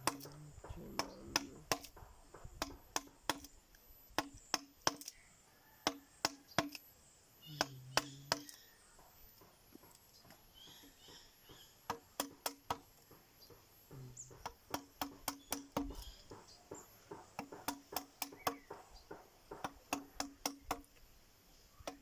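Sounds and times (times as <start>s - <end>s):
mallet striking chisel into wood: 0.0s - 3.5s, 4.2s - 5.1s, 5.8s - 6.8s, 7.6s - 8.6s, 11.9s - 12.9s, 14.3s - 20.9s.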